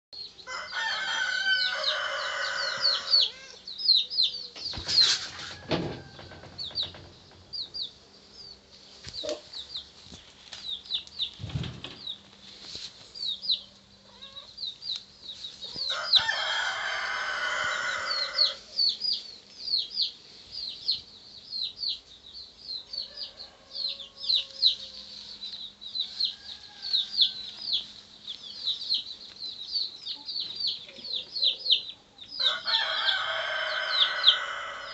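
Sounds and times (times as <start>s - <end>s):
rooster crowing: 0.4s - 3.6s, 5.3s - 6.6s, 15.8s - 18.6s, 23.0s - 25.1s, 26.1s - 27.6s, 32.4s - 34.9s.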